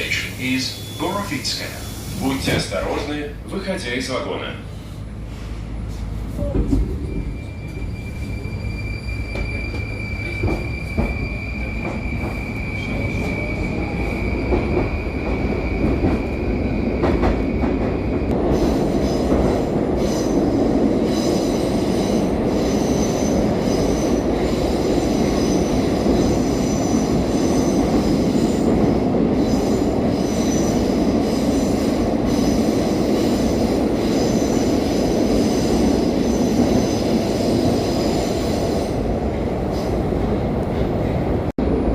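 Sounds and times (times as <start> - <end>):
train wheels on rails: 4.9 - 41.5.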